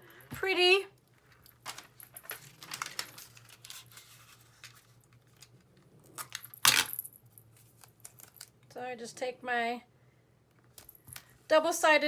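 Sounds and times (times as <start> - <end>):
tape and fabric crinkling: 1.2 - 6.8.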